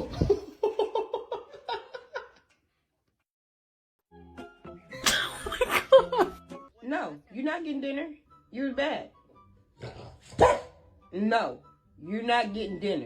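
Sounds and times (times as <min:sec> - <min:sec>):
background music: 0:04.1 - 0:13.0
rhythmic laughing: 0:04.9 - 0:06.7.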